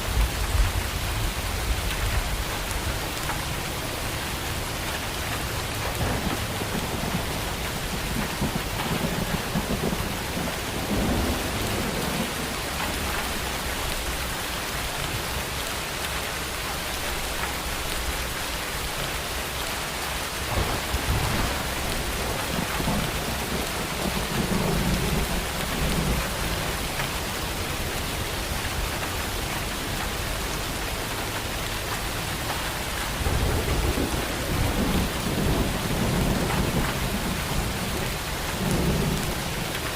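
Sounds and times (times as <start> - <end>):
steady rain falling: 0.0 - 39.9
rolling thunder: 5.9 - 13.6, 20.4 - 27.6, 33.2 - 39.8.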